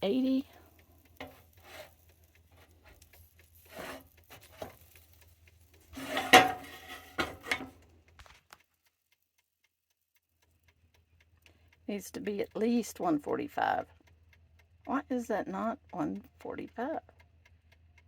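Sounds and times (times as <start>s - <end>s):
utensils scraping and knocking: 1.2s - 3.0s, 3.6s - 4.9s, 5.9s - 7.8s
cookware clattering: 6.0s - 7.7s.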